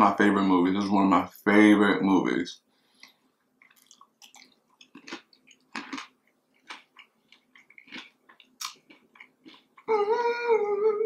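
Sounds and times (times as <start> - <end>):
crunchy chewing: 3.0 - 10.0.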